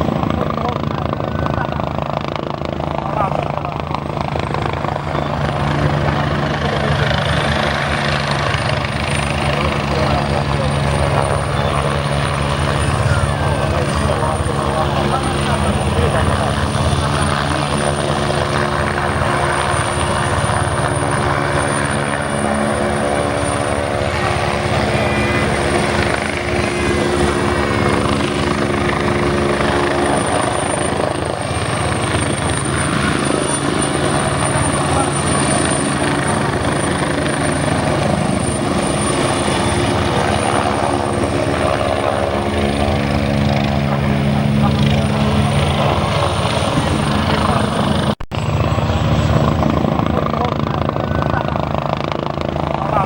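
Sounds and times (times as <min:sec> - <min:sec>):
helicopter rotor and engine hum: 0:00.0 - 0:53.0
thin high whine: 0:22.7 - 0:28.2.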